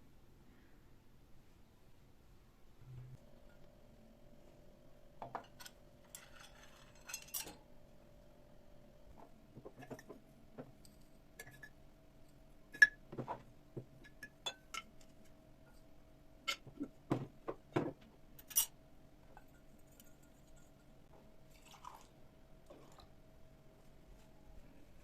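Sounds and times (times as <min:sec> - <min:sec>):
faint steady hum: 0:00.0 - 0:25.0
glassware and dishes clinking: 0:05.2 - 0:07.6, 0:14.0 - 0:14.9.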